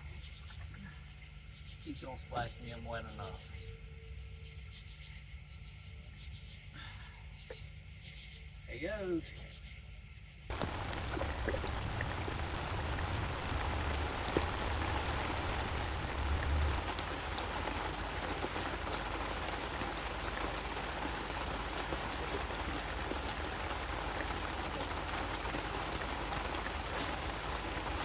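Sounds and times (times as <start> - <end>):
low rumble: 10.5 - 18.1
rain falling: 10.5 - 28.0.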